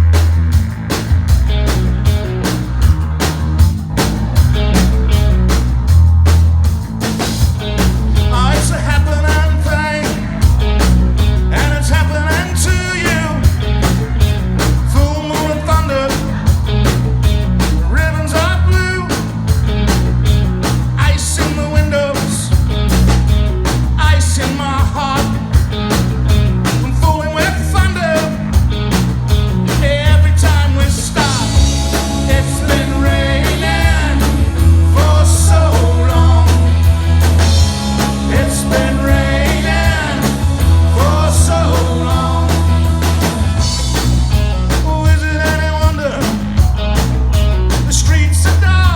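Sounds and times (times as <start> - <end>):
heavy bass: 0.0 - 48.9
rock band playing: 0.0 - 48.9
steady drum beat: 0.0 - 48.9
person singing: 29.8 - 36.8, 38.0 - 43.8.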